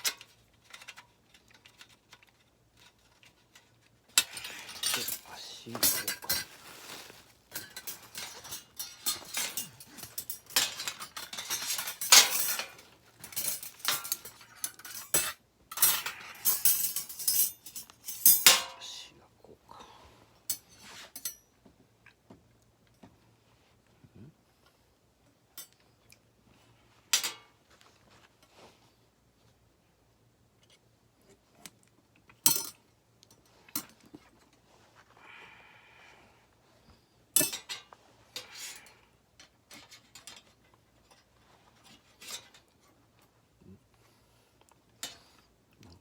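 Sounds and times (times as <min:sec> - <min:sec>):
metal parts clinking: 0:00.0 - 0:18.8.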